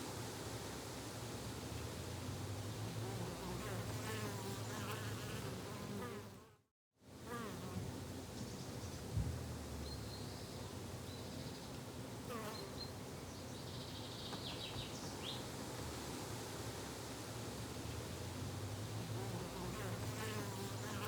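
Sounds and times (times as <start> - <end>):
flying insects buzzing: 19.1 - 21.0.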